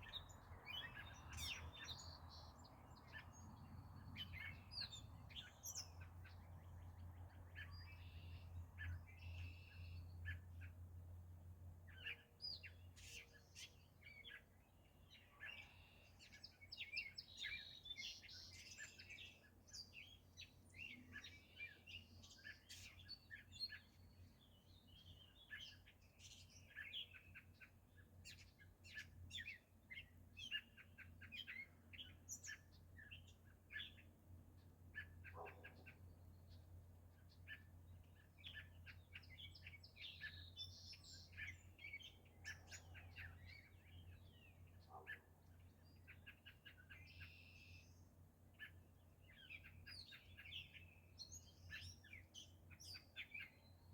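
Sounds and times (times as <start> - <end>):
birds chirping and singing: 0.0 - 10.9, 11.9 - 53.9.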